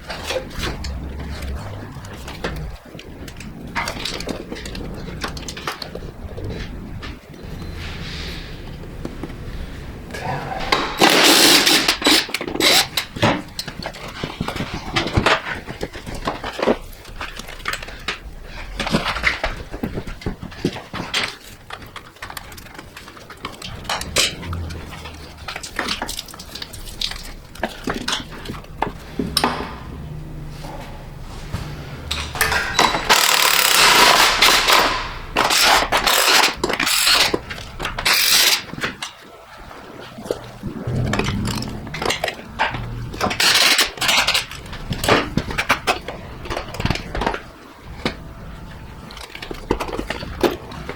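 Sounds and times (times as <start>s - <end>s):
loud rushing noise: 0.0s - 3.7s, 23.7s - 25.8s, 40.4s - 44.9s.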